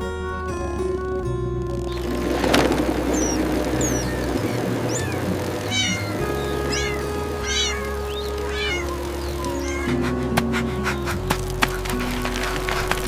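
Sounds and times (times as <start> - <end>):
background music: 0.0 - 13.0
kitten meowing: 3.1 - 10.3.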